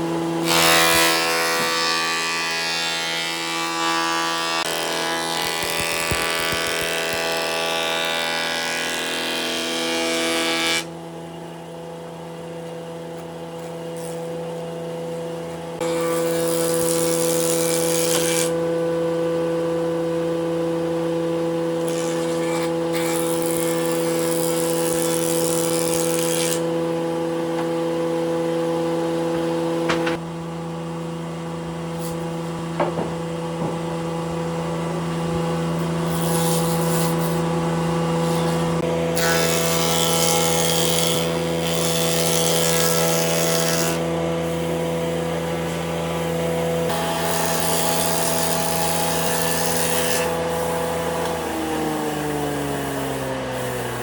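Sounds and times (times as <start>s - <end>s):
power tool motor hum: 0.2s - 10.9s, 15.8s - 18.6s, 21.6s - 26.8s, 35.2s - 54.0s
power tool cutting into wood: 0.4s - 10.9s, 15.8s - 18.6s, 21.8s - 26.7s, 36.0s - 37.5s, 38.2s - 54.0s.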